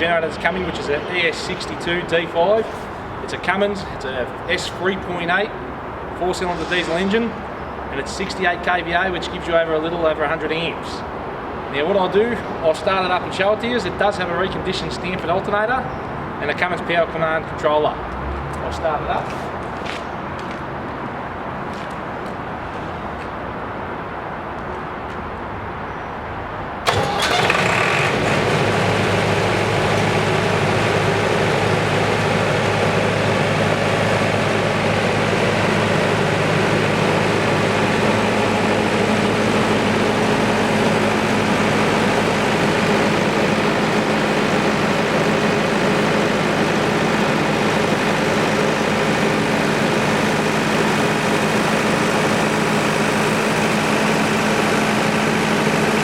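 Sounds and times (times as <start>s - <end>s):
diesel generator engine running: 0.0s - 11.8s, 26.8s - 56.0s.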